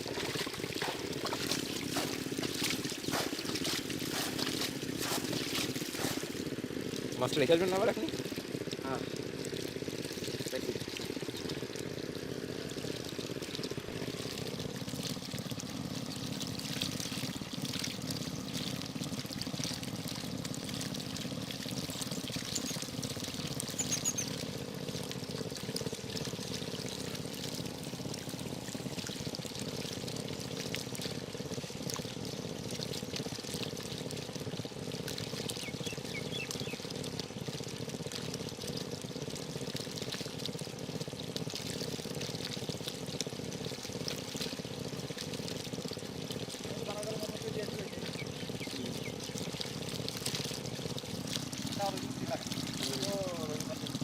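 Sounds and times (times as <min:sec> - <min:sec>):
water pouring and trickling: 0:00.0 - 0:54.0
faint bird chirps: 0:23.8 - 0:24.3, 0:35.6 - 0:36.8.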